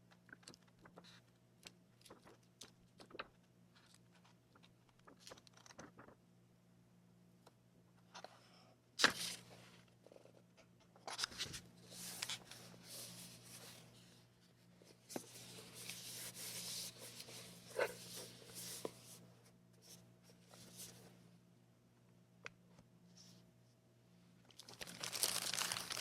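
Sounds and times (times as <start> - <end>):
faint steady hum: 0.0 - 26.0
paper rustling: 2.0 - 6.2, 11.0 - 14.0, 15.0 - 19.2, 24.7 - 26.0.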